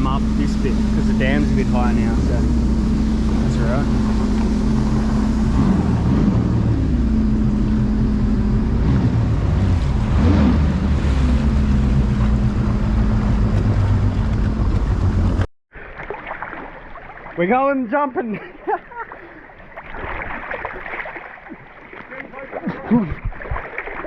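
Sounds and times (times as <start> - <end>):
jet ski engine running: 0.0 - 15.5.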